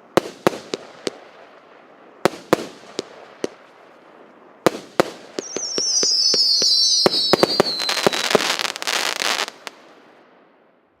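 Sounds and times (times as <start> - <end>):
firework bangs: 4.7 - 9.9
firework crackling: 4.7 - 10.0
firework whistles falling: 5.4 - 9.5.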